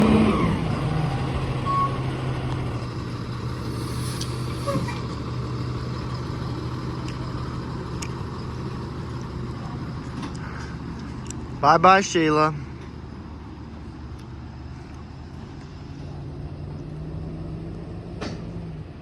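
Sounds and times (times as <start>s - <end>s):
diesel engine idling: 0.0s - 17.4s
faint engine ticks: 5.9s - 13.0s.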